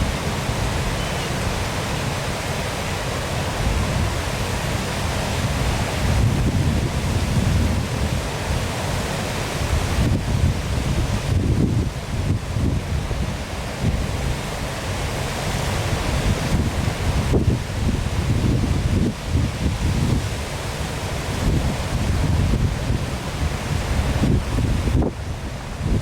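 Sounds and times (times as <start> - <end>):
waterfall rushing: 0.0 - 26.0
wind buffeting microphone: 3.5 - 8.7, 9.6 - 14.6, 15.7 - 26.0.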